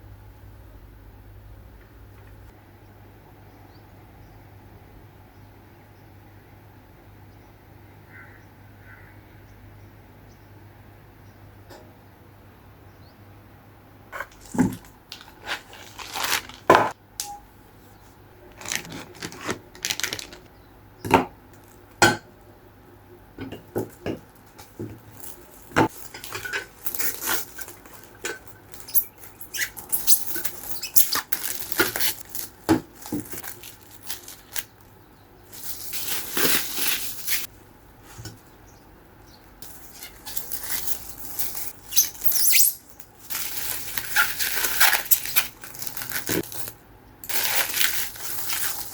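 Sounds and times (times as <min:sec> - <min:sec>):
rustling or scraping: 0:14.1 - 0:17.0, 0:17.7 - 0:20.5, 0:23.8 - 0:38.6, 0:39.6 - 0:48.9.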